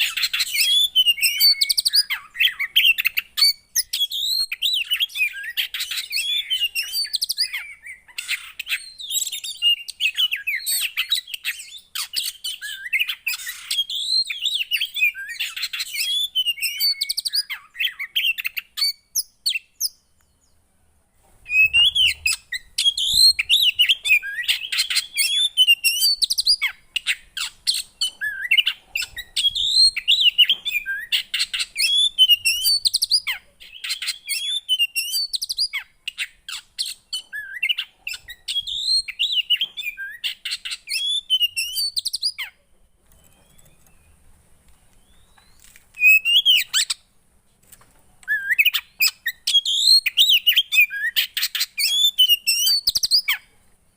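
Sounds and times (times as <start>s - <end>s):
songbird chirping and twittering: 0.0s - 47.2s, 47.8s - 53.9s.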